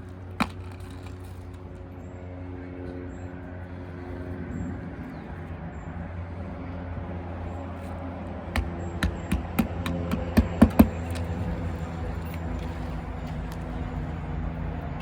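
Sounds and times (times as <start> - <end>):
steady low hum: 0.0 - 15.0
nails being hammered: 8.6 - 11.2.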